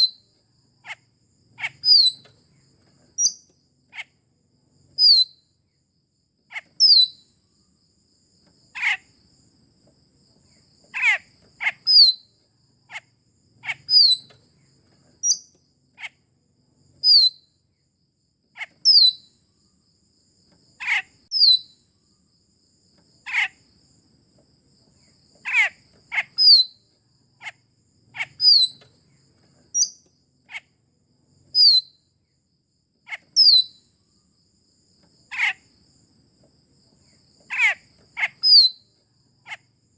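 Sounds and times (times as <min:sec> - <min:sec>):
high insect drone: 0:00.0 - 0:39.9
myna calls: 0:10.9 - 0:11.9, 0:25.4 - 0:26.6, 0:37.5 - 0:38.6.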